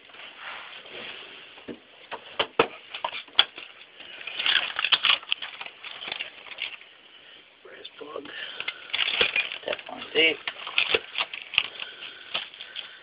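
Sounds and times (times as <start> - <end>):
metal tools clinking: 2.9 - 6.9, 8.4 - 13.0
bag rustling: 2.9 - 7.0, 8.4 - 13.0.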